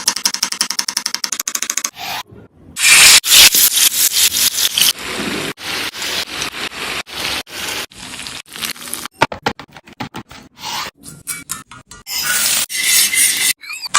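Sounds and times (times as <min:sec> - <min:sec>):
food sizzling in hot oil: 0:02.8 - 0:09.2.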